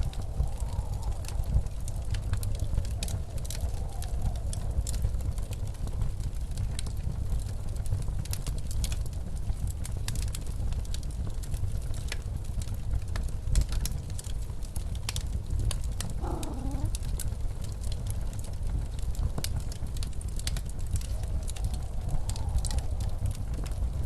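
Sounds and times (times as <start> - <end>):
wind howling: 0.0 - 5.8, 16.0 - 17.3, 20.7 - 24.0
fireplace crackling and popping: 0.0 - 24.0
low rumble of storm wind: 0.0 - 24.0.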